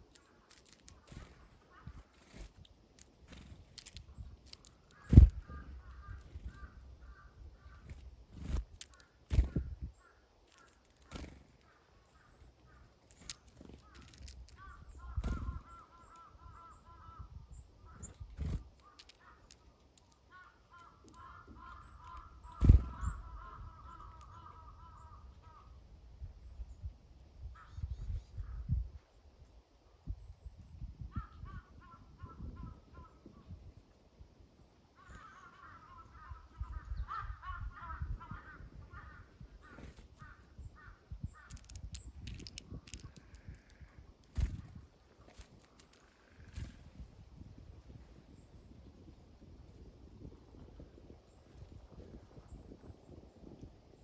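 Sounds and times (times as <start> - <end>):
crows cawing: 4.9 - 7.9, 13.8 - 18.1, 18.8 - 19.6, 20.3 - 25.7, 35.0 - 44.5
sharp clicks: 41.4 - 44.6.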